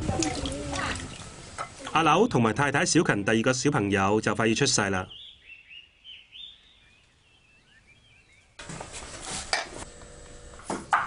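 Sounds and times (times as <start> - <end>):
faint small birds chirping: 5.1 - 8.6.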